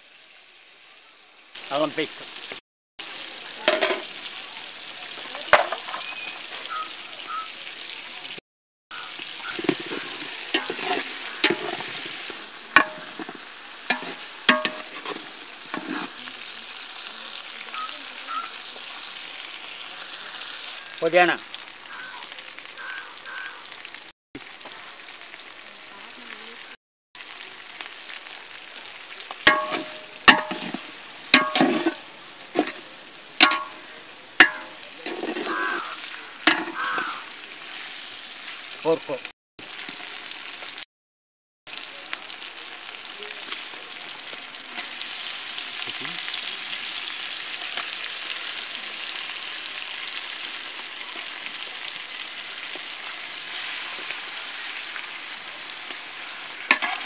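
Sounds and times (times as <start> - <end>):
food sizzling in hot oil: 0.0 - 40.9, 41.7 - 57.0
metal ladle knocking and scraping pot: 9.5 - 16.1, 29.5 - 32.0, 32.6 - 35.9, 36.5 - 37.2, 56.7 - 57.0.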